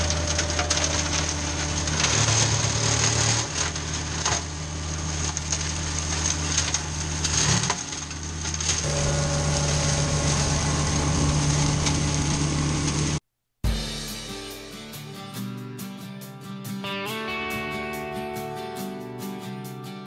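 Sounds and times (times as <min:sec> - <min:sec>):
tractor engine running: 0:00.0 - 0:13.2
wood crackling and snapping: 0:00.0 - 0:13.2.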